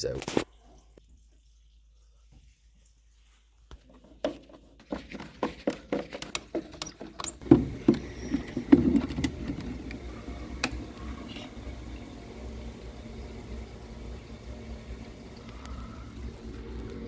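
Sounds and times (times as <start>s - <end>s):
sharp clicks and knocks: 4.2s - 11.5s.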